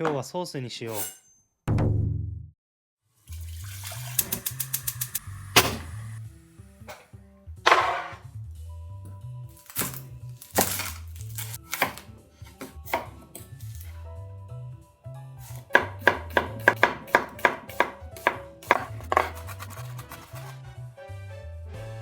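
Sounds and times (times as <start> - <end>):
background music: 3.3 - 22.0
knife chopping on cutting board: 9.6 - 13.9, 15.4 - 20.6.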